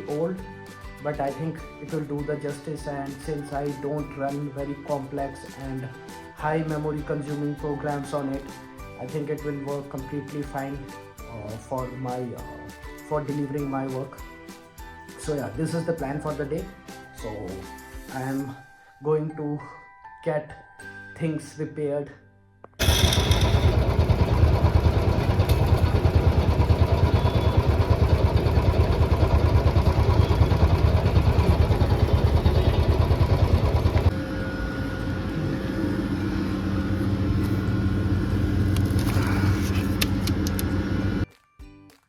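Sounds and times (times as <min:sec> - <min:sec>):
motorcycle engine running: 0:22.8 - 0:41.2.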